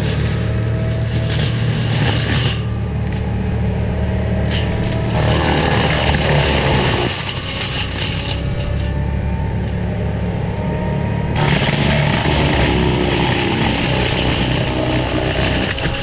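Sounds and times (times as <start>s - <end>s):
cutting head grinding brush: 0.0s - 3.4s, 4.4s - 9.0s, 11.3s - 16.0s
diesel engine running under load: 0.0s - 16.0s.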